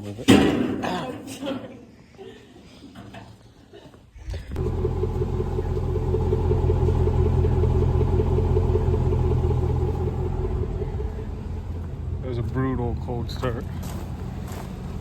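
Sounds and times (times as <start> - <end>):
car engine starting and running: 4.5 - 15.0.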